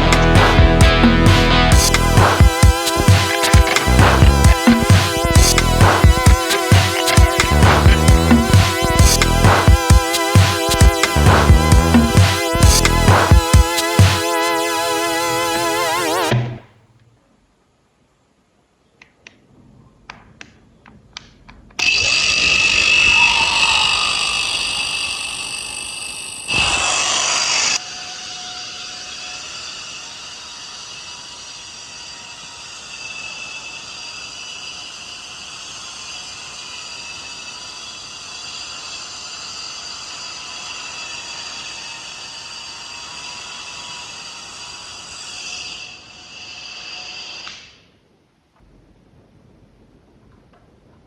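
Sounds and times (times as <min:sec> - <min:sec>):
hair dryer fan whine: 0:00.0 - 0:16.4, 0:21.8 - 0:28.5.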